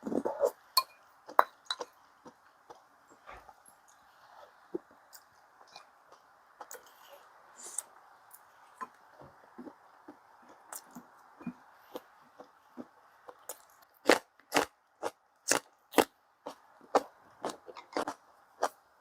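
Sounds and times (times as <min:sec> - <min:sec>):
chewing crunchy food: 0:09.6 - 0:18.8.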